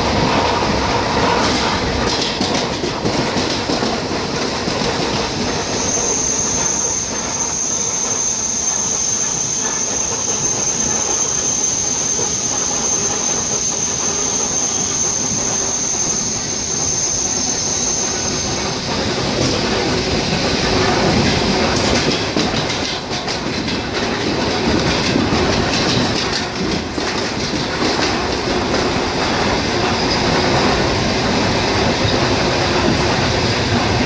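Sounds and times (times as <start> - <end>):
train wheels rumbling on rail: 0.0 - 34.0
high-pitched squeal: 5.3 - 19.4.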